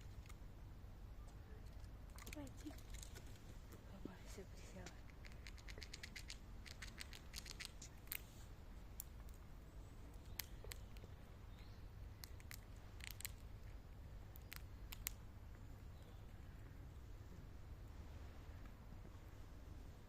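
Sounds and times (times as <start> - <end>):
squirrel gnawing nut shell: 0.0 - 0.5, 1.6 - 3.8, 4.8 - 9.5, 10.1 - 17.0.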